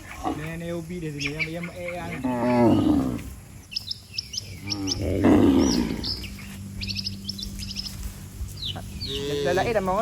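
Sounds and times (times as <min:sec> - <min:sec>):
small birds chirping: 0:00.0 - 0:10.0
cow lowing: 0:02.0 - 0:03.5, 0:04.6 - 0:06.8.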